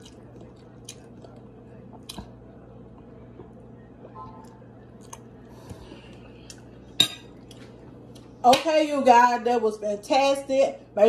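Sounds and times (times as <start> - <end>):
chewing with mouth clicks: 0.0 - 6.8
low hum: 0.0 - 8.4.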